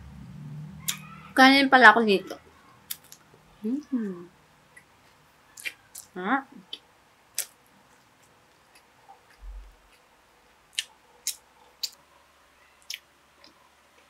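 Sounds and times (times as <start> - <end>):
chewing mouth clicks: 10.7 - 12.0.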